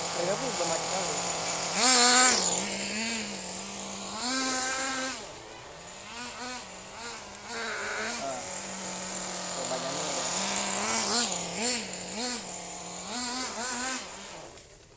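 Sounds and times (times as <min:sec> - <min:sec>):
rc buggy engine revving: 0:00.0 - 0:14.9.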